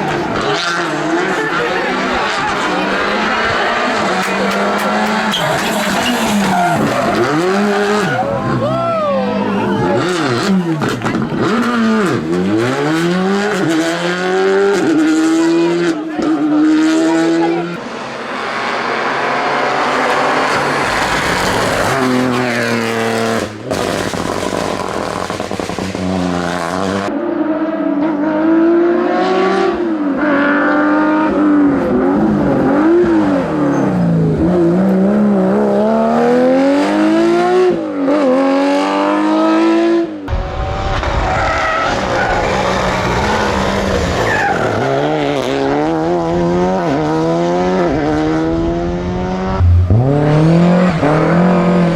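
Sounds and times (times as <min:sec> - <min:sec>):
rally car engines revving: 0:00.0 - 0:51.9
tyre squeal: 0:05.2 - 0:08.2.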